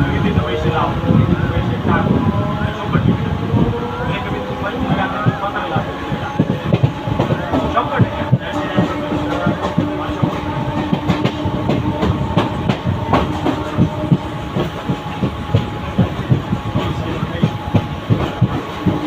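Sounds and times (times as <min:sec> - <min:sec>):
train running noise: 0:00.0 - 0:19.0
train wheels clacking over rail joints: 0:04.3 - 0:19.0.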